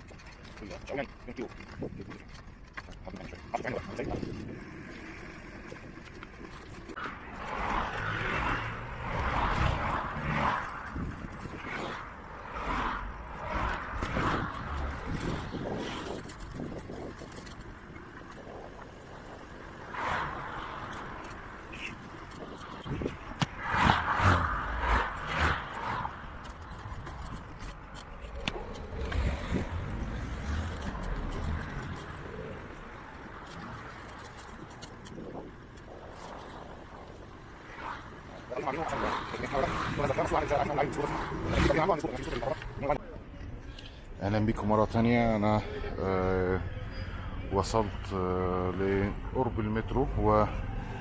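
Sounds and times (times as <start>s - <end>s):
road traffic: 0.0s - 51.0s
wind rushing over microphone: 6.9s - 43.0s.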